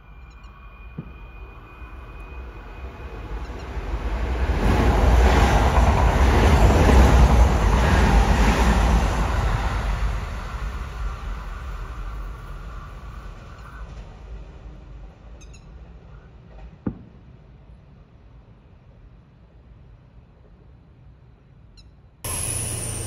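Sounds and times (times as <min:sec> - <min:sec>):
electric train passing at speed: 0:00.0 - 0:16.6, 0:22.3 - 0:23.0.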